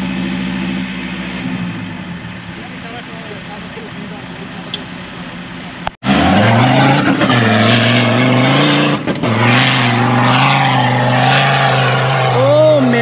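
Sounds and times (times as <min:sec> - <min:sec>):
off-road vehicle engine roaring: 0:00.0 - 0:13.0.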